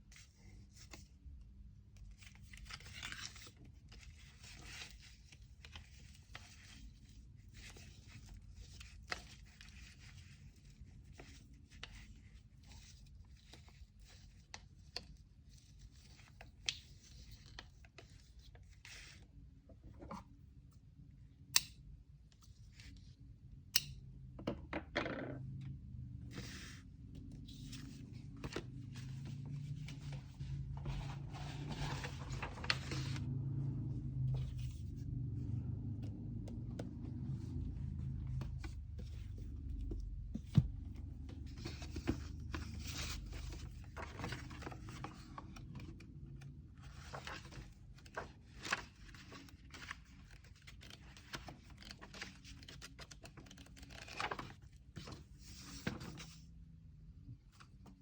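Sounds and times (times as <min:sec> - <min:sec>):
low room hum: 0:00.0 - 0:58.0
paper rustling and tearing: 0:28.9 - 0:33.2, 0:46.9 - 0:54.7.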